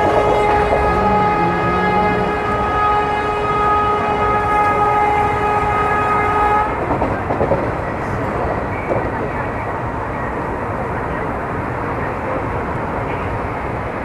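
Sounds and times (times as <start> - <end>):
train horn long note: 0.0 - 6.8
train rumbling and rattling: 0.0 - 14.0.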